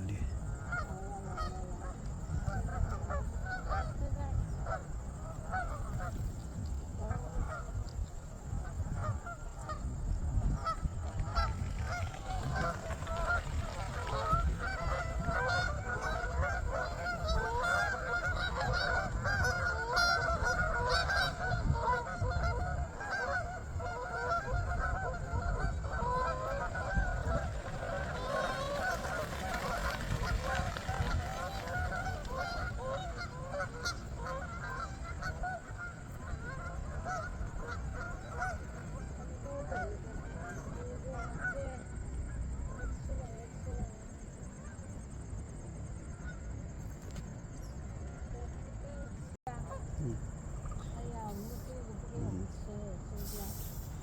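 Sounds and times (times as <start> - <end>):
geese honking: 0.0 - 43.8.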